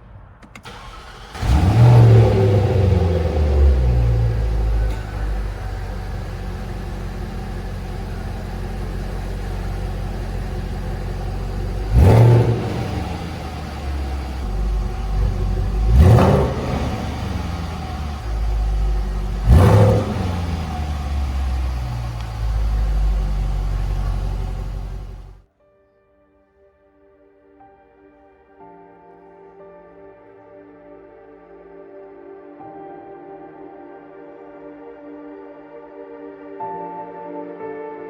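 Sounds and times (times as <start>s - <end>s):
car engine idling and revving: 0.4s - 25.4s.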